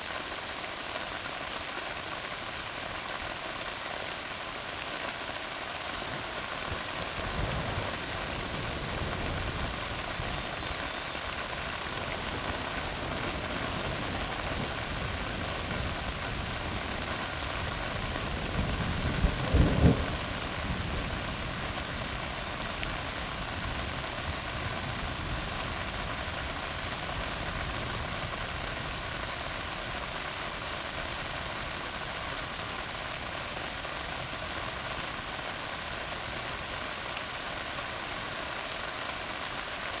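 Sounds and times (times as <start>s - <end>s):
rain on a road: 0.0s - 40.0s
low thunder rumble: 11.9s - 22.4s.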